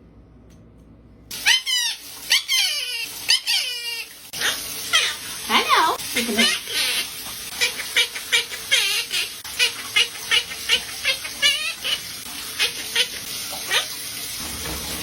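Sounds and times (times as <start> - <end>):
parrot chirping: 1.4 - 5.2, 6.1 - 13.9.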